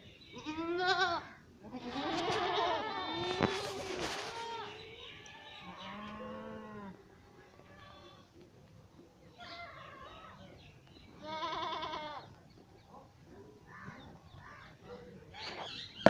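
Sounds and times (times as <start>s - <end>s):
goats bleating: 0.4s - 7.0s, 11.2s - 12.3s.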